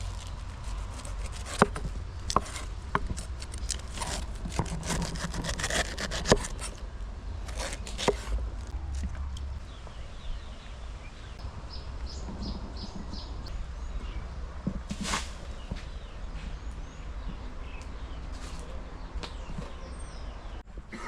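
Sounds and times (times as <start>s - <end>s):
scraping and rubbing: 0.0s - 6.8s, 7.4s - 9.2s.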